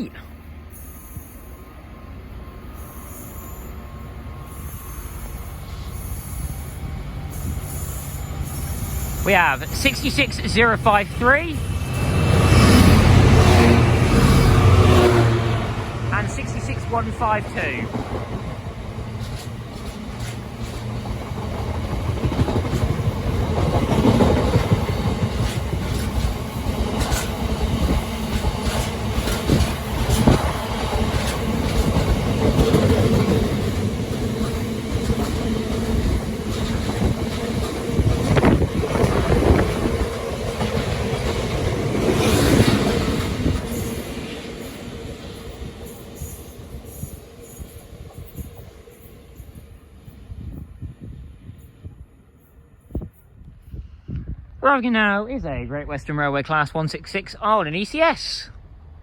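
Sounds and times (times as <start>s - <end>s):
freight train wheels clattering: 17.2s - 48.6s.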